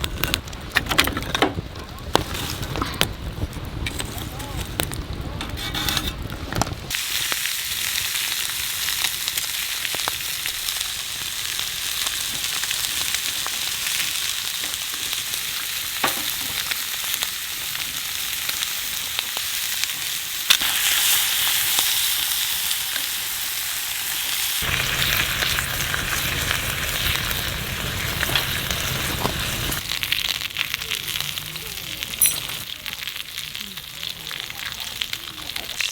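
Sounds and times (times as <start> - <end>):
food sizzling in a pan: 6.9 - 35.9
low rumble: 24.6 - 29.8.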